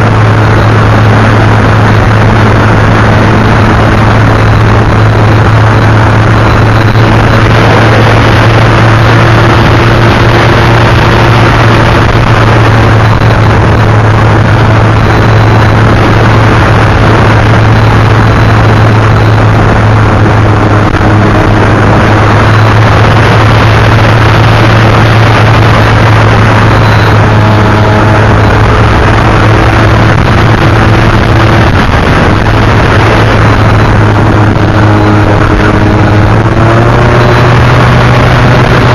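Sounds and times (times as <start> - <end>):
model airplane motor running: 0.0 - 38.9
rushing noise: 0.0 - 38.9.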